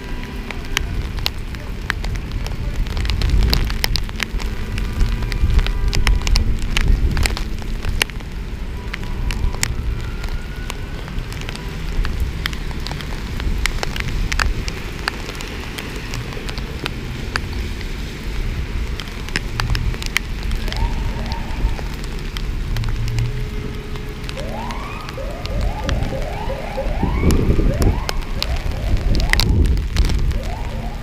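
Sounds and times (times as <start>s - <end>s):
heavy rain pouring: 0.0s - 31.0s
raindrops ticking on camera: 0.0s - 31.0s
faint siren wailing: 8.4s - 13.0s, 20.0s - 22.2s, 22.8s - 31.0s.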